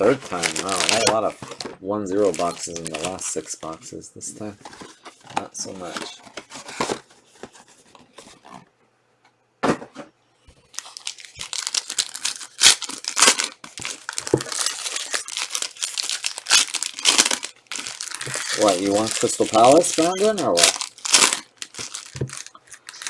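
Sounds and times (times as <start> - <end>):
plastic wrapping tearing and crinkling: 0.0 - 3.4, 10.7 - 23.0.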